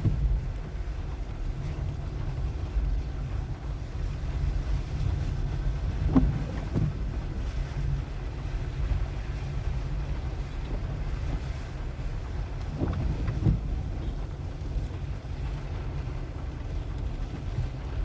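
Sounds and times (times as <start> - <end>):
car engine and tyres rumbling: 0.0 - 18.0
car thumping over bumps: 5.7 - 7.5, 12.5 - 17.8.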